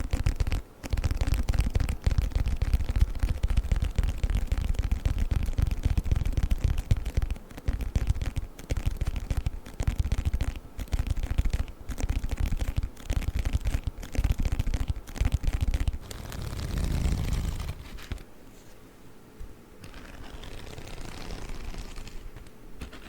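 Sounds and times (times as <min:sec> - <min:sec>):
fingernails tapping on a book: 0:00.0 - 0:16.1.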